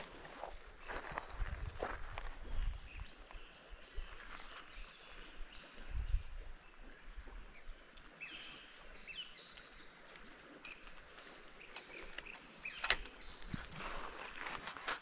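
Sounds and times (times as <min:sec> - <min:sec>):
birds chirping and whistling: 0:08.2 - 0:14.4.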